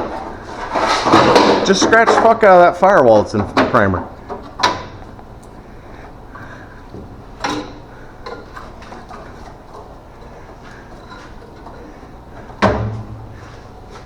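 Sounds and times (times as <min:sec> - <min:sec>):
steady low hum: 0:00.0 - 0:14.0
tools and parts clinking: 0:07.4 - 0:09.9.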